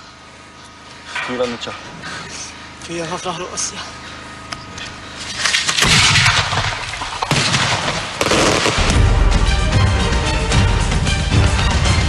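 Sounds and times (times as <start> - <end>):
fireworks crackling: 7.1 - 9.1
fireworks bangs: 7.2 - 9.1.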